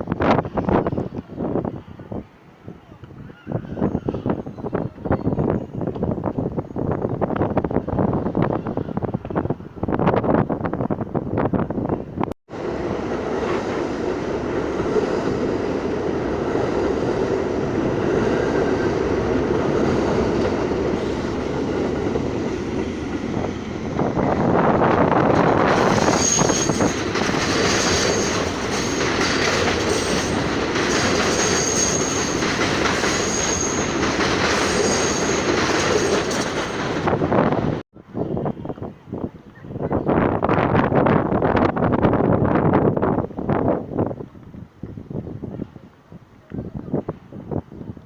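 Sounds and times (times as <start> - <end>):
subway train rumble and clatter: 0.0 - 48.0
high wheel squeals: 25.8 - 29.3, 29.9 - 34.0.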